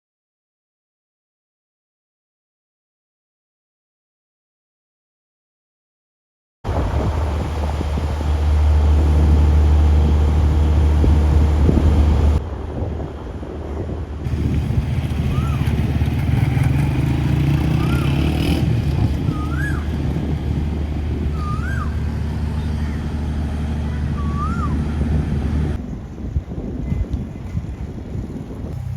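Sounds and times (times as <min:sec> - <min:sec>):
motorcycle and car engines: 0:06.7 - 0:28.9.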